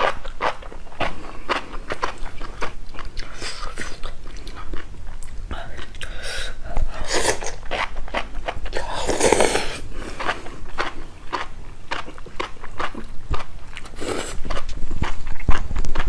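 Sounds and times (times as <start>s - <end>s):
wet chewing and mouth clicks: 0.0s - 16.0s
noodle slurping: 5.8s - 13.1s, 13.8s - 14.7s.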